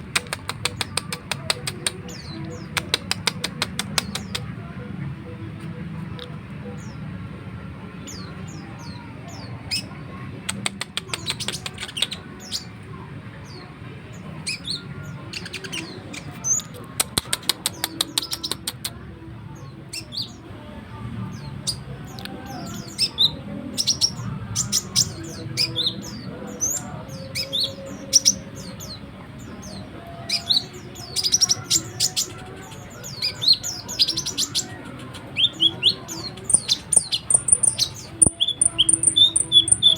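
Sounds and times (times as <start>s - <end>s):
songbird chattering and whistling: 0.0s - 4.5s, 14.4s - 19.0s, 29.7s - 39.9s.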